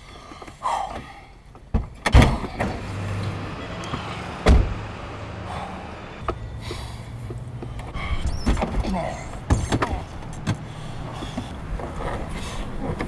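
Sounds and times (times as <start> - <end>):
heavy thumps: 1.8 - 5.4
car engine idling: 2.3 - 13.0.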